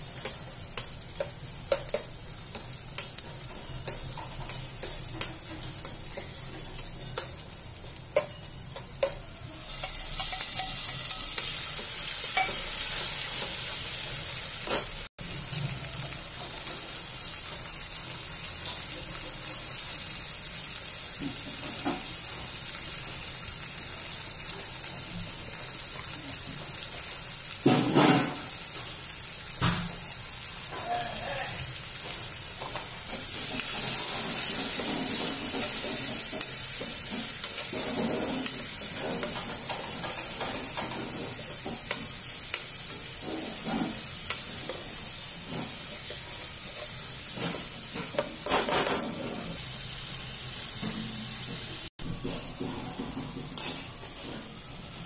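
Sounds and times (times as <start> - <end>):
steel spoon scraping a pan: 0.0 - 15.0, 32.6 - 49.7
vegetables sizzling in oil: 0.0 - 55.0.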